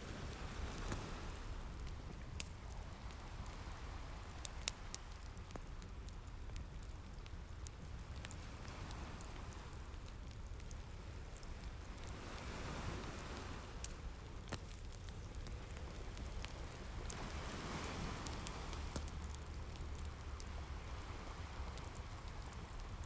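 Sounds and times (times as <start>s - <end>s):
fireplace crackling: 0.0s - 23.0s
ocean waves washing in: 17.0s - 19.2s.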